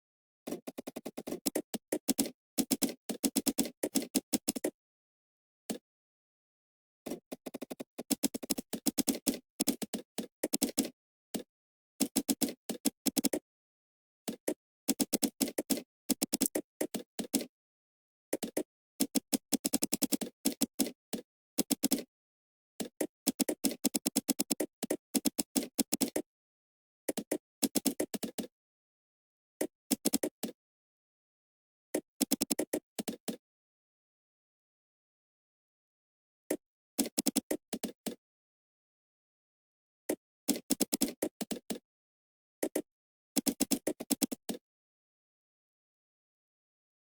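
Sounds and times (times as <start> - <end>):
computer keyboard typing: 14.3 - 17.5, 42.6 - 44.6.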